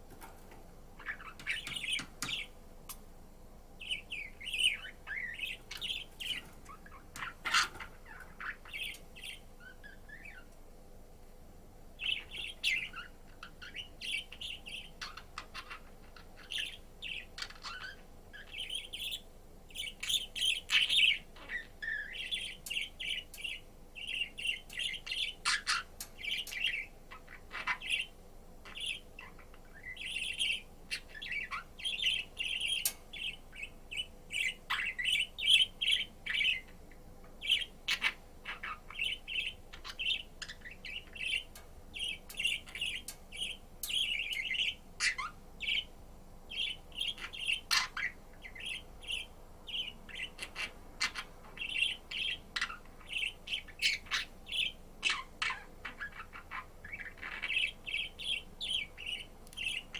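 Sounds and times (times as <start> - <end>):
budgerigar chattering: 46.6 - 59.9.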